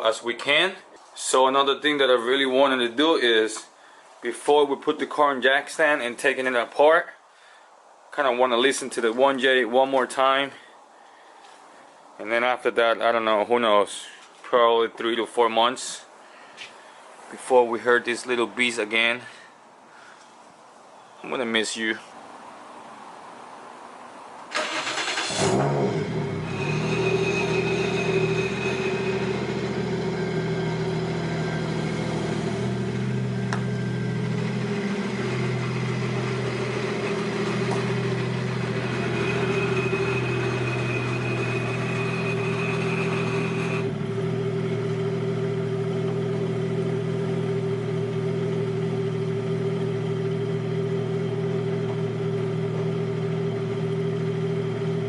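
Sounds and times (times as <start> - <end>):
car engine cranking and starting: 24.5 - 55.0
car engine idling: 24.6 - 55.0.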